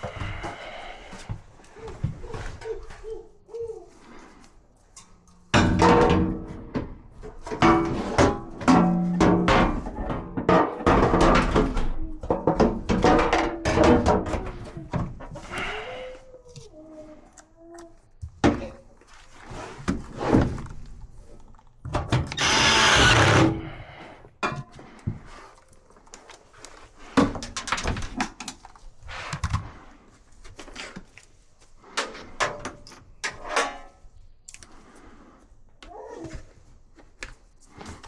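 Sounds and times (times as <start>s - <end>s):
power tool whirring: 22.3s - 23.8s.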